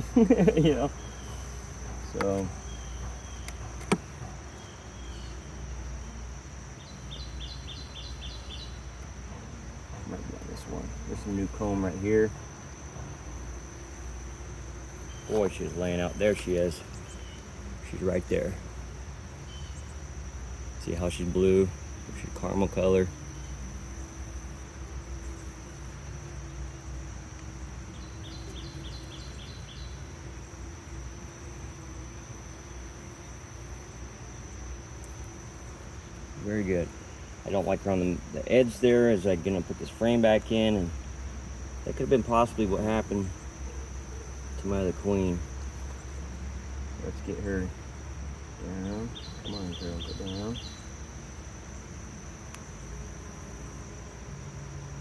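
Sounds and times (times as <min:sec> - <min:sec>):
cricket-like insect trill: 0:00.0 - 0:55.0
honeybees humming: 0:00.0 - 0:55.0
bird chirping: 0:02.0 - 0:05.5, 0:06.8 - 0:08.9, 0:19.4 - 0:20.0, 0:27.9 - 0:30.0, 0:48.8 - 0:50.9.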